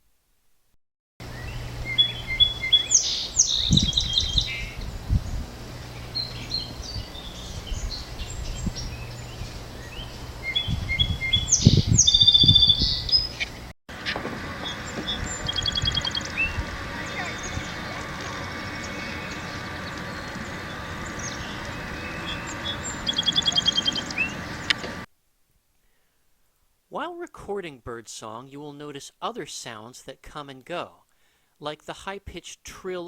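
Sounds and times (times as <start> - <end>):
faint birdsong: 1.2 - 25.1
faint steady hum: 1.2 - 31.7
songbird singing trills: 1.3 - 13.6, 14.6 - 24.8.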